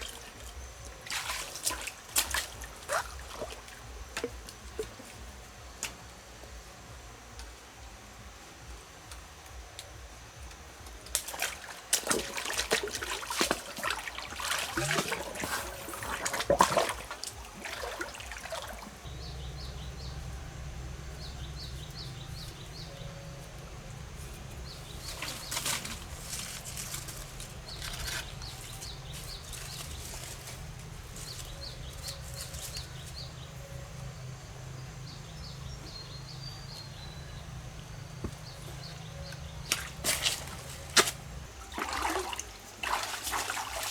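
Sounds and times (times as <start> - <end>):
water splashing and sloshing: 0.0 - 6.1, 10.9 - 35.5, 38.2 - 43.9
steady low rumble: 18.8 - 41.7.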